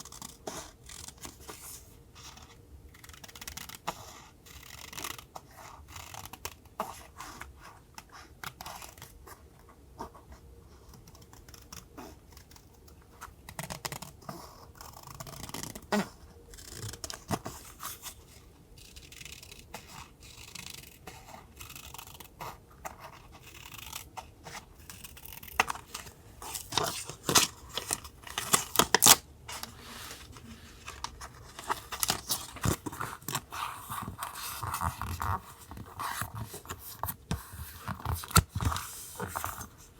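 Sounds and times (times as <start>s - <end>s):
scissors snipping paper: 18.8s - 39.8s
paper tearing: 24.9s - 39.8s
paper rustling: 25.5s - 39.9s.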